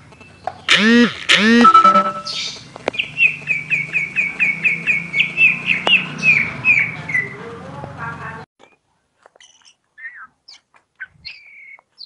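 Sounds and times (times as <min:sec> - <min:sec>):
bird calling repeated notes: 0:00.7 - 0:02.6.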